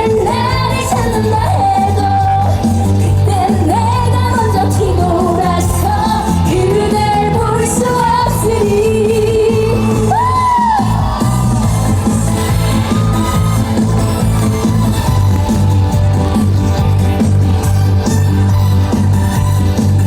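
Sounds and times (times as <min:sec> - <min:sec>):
woman singing: 0:00.0 - 0:11.0
amplified backing track with bass beat: 0:00.0 - 0:20.0.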